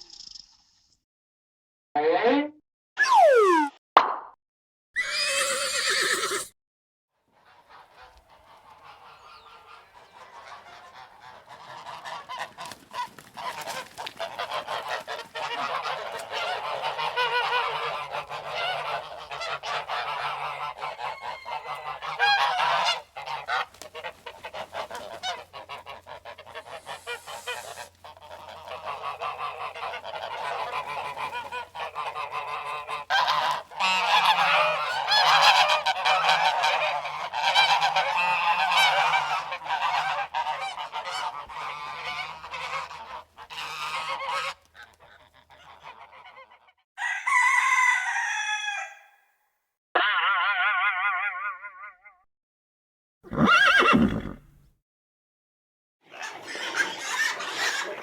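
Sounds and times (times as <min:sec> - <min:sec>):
geese honking: 0:07.4 - 0:49.0.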